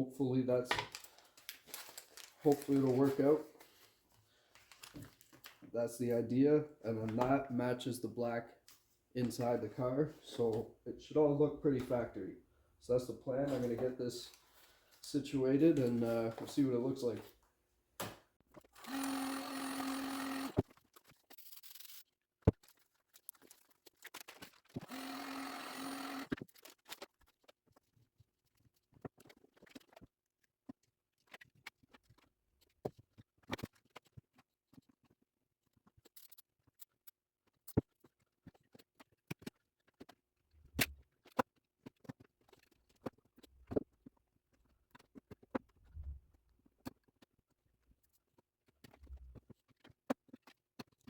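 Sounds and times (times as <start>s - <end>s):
small motor humming: 18.8s - 20.6s, 24.9s - 26.4s.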